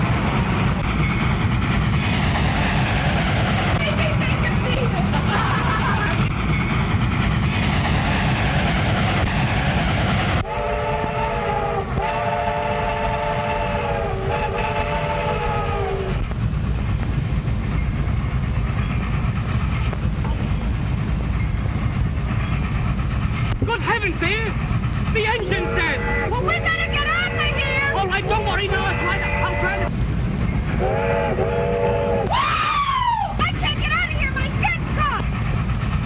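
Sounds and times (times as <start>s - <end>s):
train rumbling and clattering: 0.0s - 36.0s
locomotive whistle blasts: 10.4s - 16.1s, 30.8s - 33.2s.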